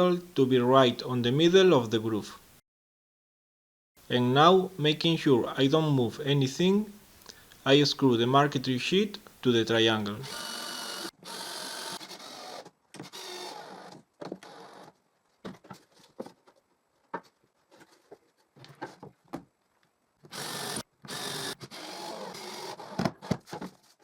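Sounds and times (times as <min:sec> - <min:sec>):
power drill driving screws into wood: 0:10.3 - 0:14.9, 0:20.3 - 0:23.4.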